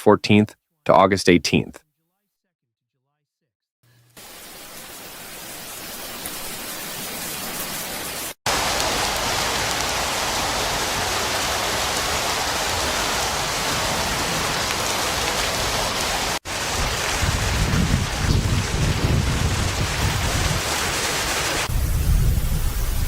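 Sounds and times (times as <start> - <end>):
heavy rain pouring: 4.2 - 23.0
wind buffeting microphone: 16.6 - 20.7, 21.7 - 23.0.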